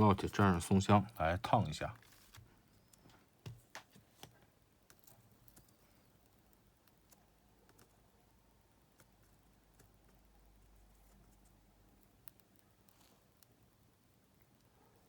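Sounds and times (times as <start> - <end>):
small tools clicking on circuit board: 4.9 - 8.0, 12.0 - 13.6.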